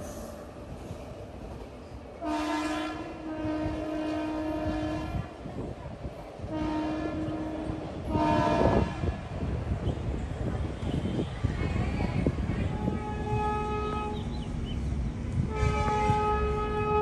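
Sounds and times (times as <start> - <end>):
train rumble: 0.0 - 17.0
locomotive horn blasts: 2.2 - 5.4, 6.4 - 9.3, 12.7 - 14.3, 15.5 - 17.0.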